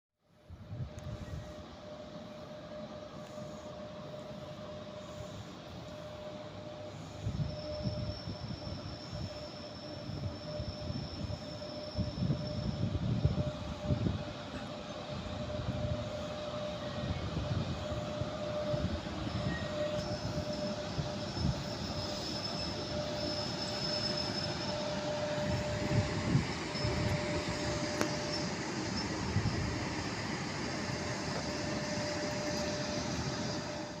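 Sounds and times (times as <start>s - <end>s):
locomotive hum: 0.4s - 34.0s
high-pitched wheel squeal: 1.0s - 34.0s.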